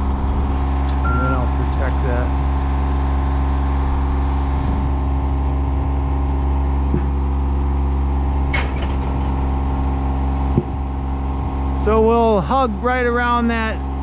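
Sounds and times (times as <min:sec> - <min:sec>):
engine running steadily: 0:00.0 - 0:14.0
low knock: 0:06.9 - 0:07.2, 0:10.5 - 0:10.8.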